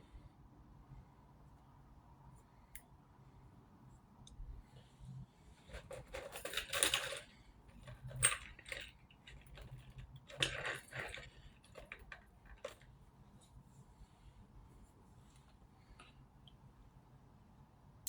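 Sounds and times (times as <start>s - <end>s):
jewellery clinking: 5.8s - 12.9s.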